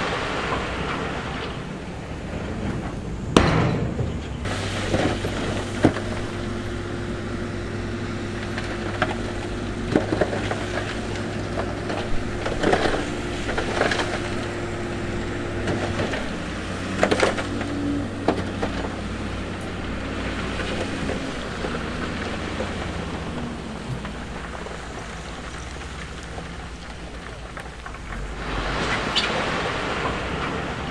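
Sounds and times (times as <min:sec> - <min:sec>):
bulldozer diesel engine under load: 0:00.0 - 0:30.9.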